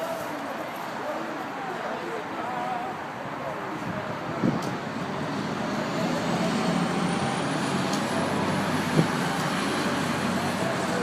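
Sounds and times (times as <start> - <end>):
street traffic: 0.0 - 11.0
engine running close by: 4.3 - 11.0.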